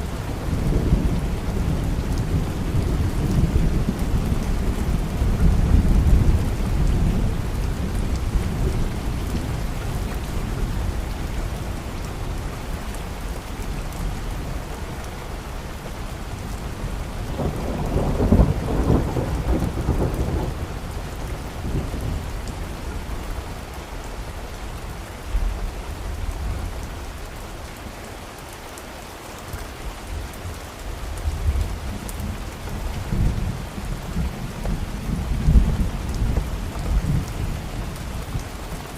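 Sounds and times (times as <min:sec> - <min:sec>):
steady rain: 0:00.0 - 0:38.9
rolling thunder: 0:16.8 - 0:22.6.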